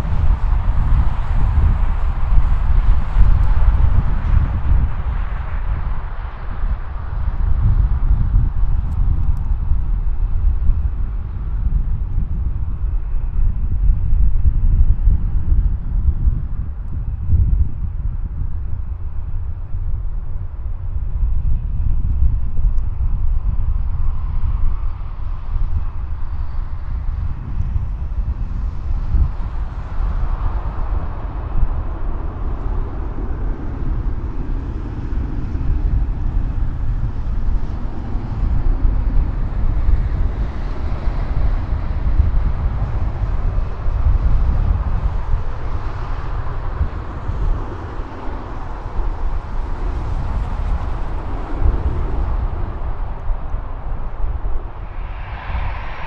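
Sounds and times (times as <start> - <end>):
jet engines rumbling: 0.0 - 9.7, 24.2 - 56.0
wind buffeting microphone: 0.0 - 56.0.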